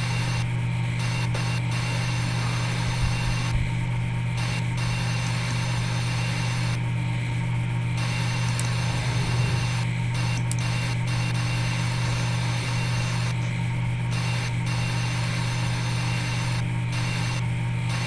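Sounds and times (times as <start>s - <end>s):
low hum: 8.4s - 10.6s.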